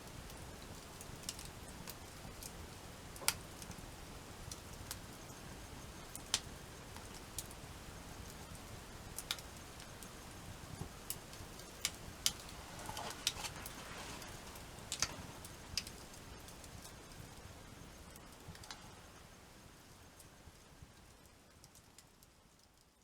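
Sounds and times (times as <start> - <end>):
campfire crackling: 0.0 - 23.0.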